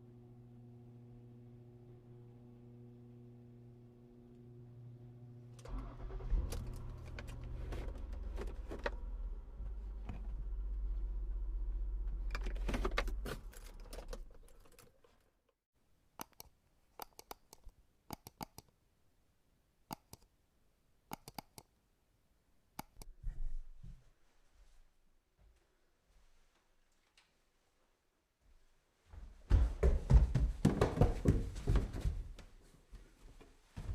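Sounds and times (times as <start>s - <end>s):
rumble with clicks and rattles: 4.3s - 15.2s.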